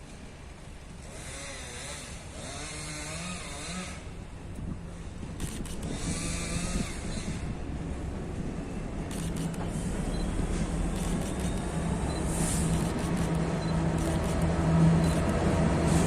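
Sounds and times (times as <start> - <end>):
diesel engine drone: 0.0 - 16.0
train wheels rolling: 4.6 - 16.0
wavering whine: 10.8 - 16.0.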